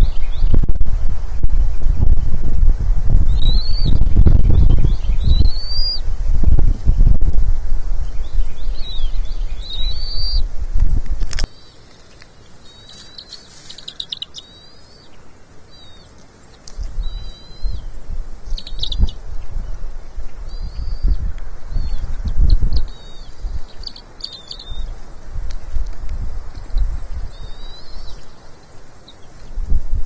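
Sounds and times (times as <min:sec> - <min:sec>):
wind rumble on microphone: 0:00.0 - 0:11.5, 0:16.7 - 0:30.0
high bird chirps: 0:03.3 - 0:06.0, 0:08.1 - 0:10.4, 0:12.4 - 0:25.0, 0:26.6 - 0:29.6.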